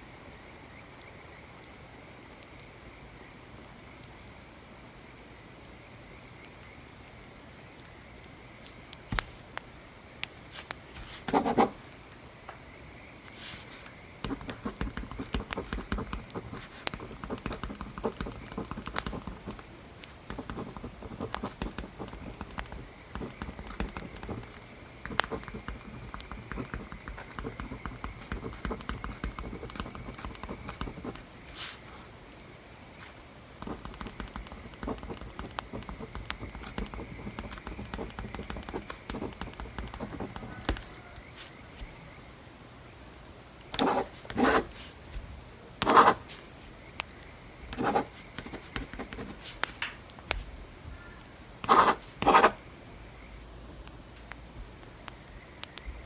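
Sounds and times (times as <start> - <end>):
pen scratching on paper: 11.0 - 11.8, 13.5 - 31.9, 33.0 - 41.6, 43.8 - 45.0, 45.8 - 46.4, 47.7 - 49.7, 51.6 - 52.6.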